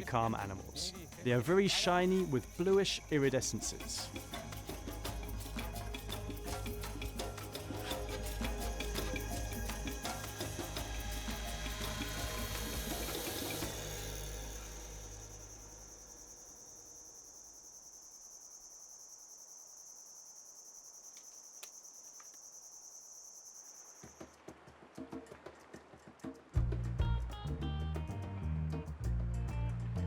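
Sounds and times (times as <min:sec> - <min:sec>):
background music: 0:00.0 - 0:16.2, 0:26.6 - 0:30.0
insects trilling: 0:00.0 - 0:24.5.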